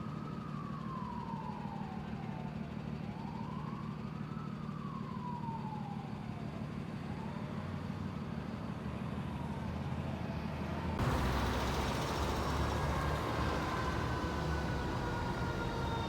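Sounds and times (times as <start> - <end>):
emergency vehicle siren: 0.0 - 16.0
low engine rumble: 11.0 - 16.0.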